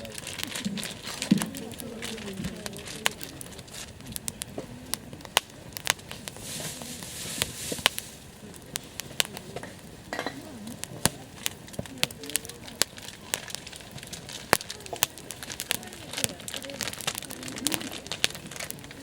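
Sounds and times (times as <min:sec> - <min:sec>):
campfire crackling and popping: 0:00.0 - 0:19.0
soft hiss: 0:01.5 - 0:16.2.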